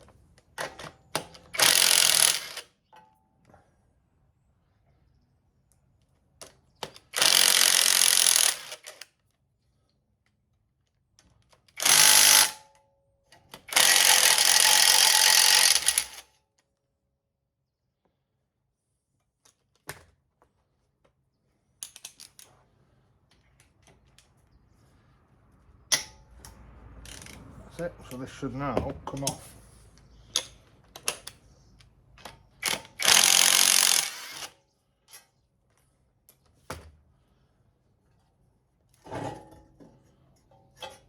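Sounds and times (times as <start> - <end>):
cordless power tool whirring: 7.2 - 9.0, 13.7 - 16.2, 32.6 - 34.6.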